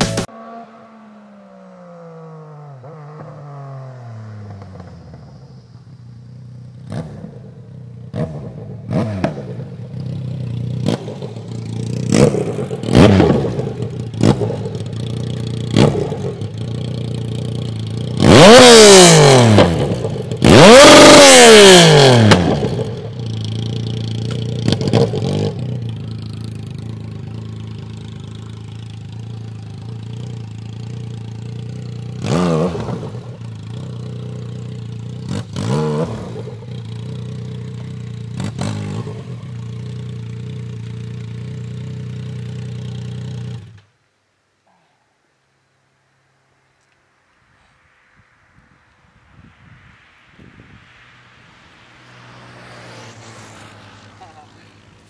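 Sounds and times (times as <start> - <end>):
motorcycle engine revving: 0.0 - 43.9, 50.4 - 55.0
motorcycle engine idling: 2.1 - 18.6, 22.3 - 32.2.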